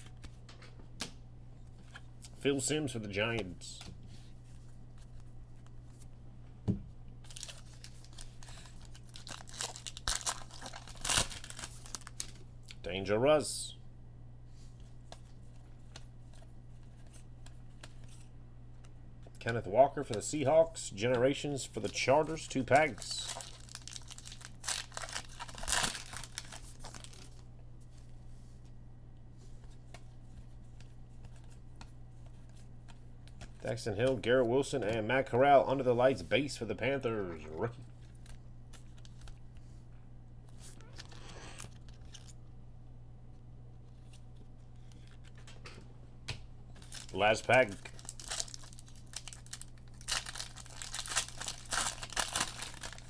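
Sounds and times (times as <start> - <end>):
low steady hum: 0.0 - 53.0
foil wrapper crinkling and tearing: 7.2 - 12.8, 21.8 - 27.5, 40.6 - 42.4, 46.8 - 53.0.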